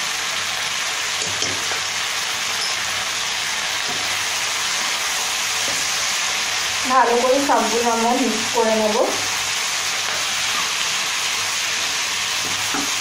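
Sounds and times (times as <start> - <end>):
vegetables sizzling in wok: 0.0 - 13.0.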